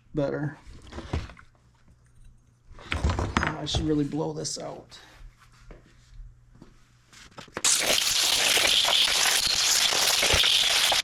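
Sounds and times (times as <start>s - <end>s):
compressed air hissing: 7.6s - 11.0s.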